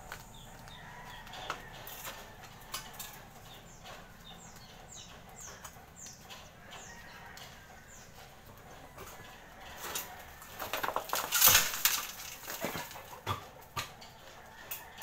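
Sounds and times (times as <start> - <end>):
bird chirping: 0.0 - 10.0.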